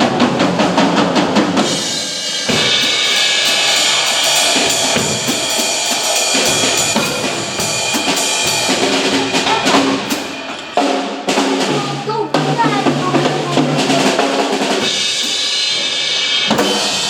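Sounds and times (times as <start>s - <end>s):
drum kits playing fast: 0.0s - 17.0s
ringing cymbals: 1.6s - 12.0s, 13.6s - 17.0s
held pitched notes: 1.8s - 16.0s.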